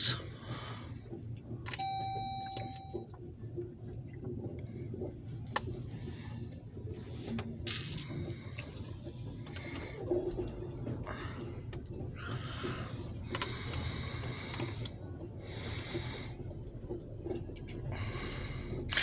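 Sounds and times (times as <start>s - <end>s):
brief held tone: 1.8s - 3.1s.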